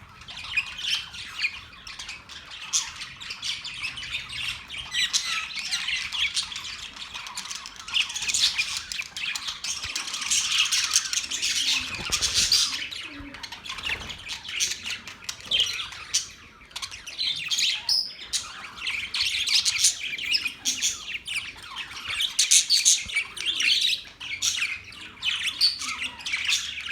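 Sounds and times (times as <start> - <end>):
parrots chattering: 0.0 - 26.9.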